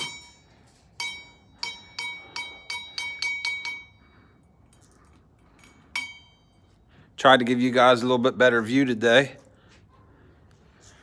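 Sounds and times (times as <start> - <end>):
small metal bell ringing: 0.0 - 4.2, 5.6 - 6.8.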